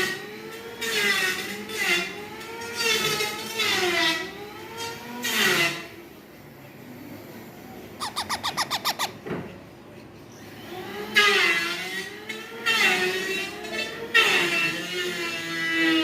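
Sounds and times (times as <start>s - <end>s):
baby parrot calling: 8.0s - 9.2s.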